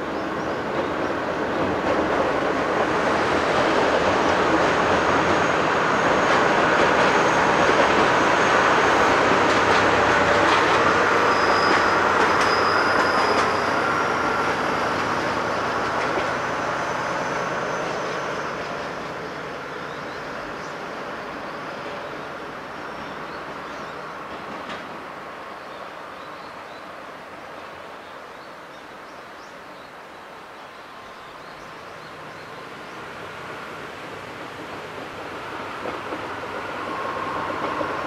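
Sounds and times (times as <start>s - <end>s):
train rumbling on rails: 0.0s - 38.0s
high wheel squeal: 4.9s - 20.3s.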